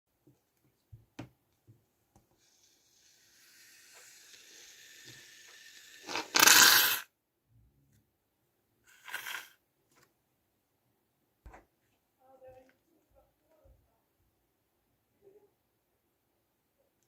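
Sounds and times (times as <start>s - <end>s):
aerosol foam hissing: 2.4s - 7.0s, 8.9s - 9.5s.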